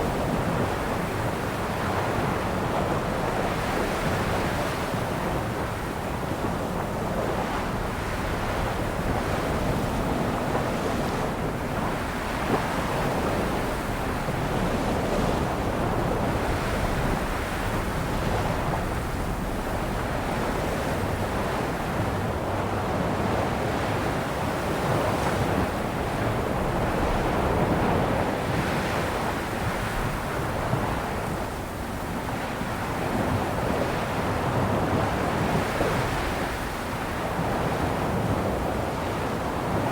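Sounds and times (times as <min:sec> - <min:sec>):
sea waves breaking on shore: 0:00.0 - 0:39.9
wind rumble on microphone: 0:00.0 - 0:39.9.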